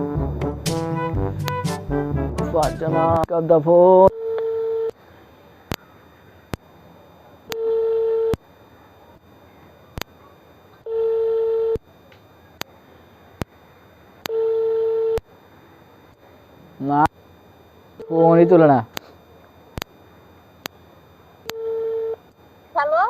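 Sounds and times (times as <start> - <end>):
telephone ringback tone: 4.1 - 4.9, 7.5 - 8.4, 10.8 - 11.8, 14.3 - 15.2, 21.5 - 22.2.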